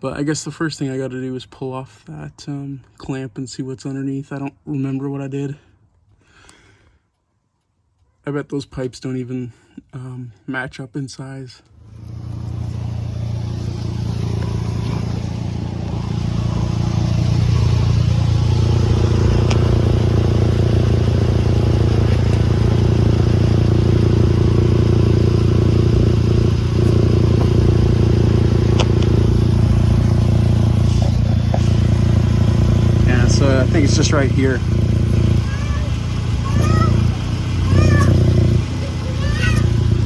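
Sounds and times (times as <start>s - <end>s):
car engine running: 11.7s - 40.0s
exhaust leak blowing: 11.7s - 40.0s.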